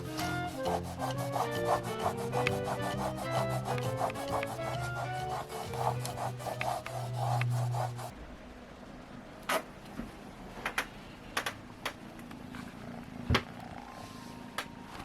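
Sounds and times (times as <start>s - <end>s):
kitten purring: 12.4s - 14.2s.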